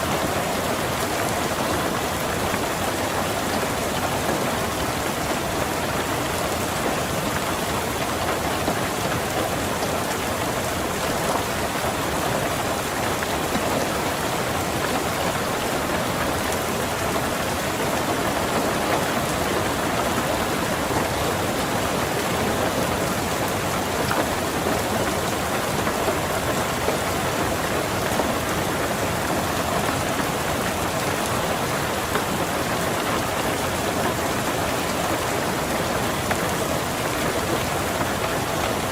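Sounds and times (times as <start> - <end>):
rain pattering on a car: 0.0 - 38.9.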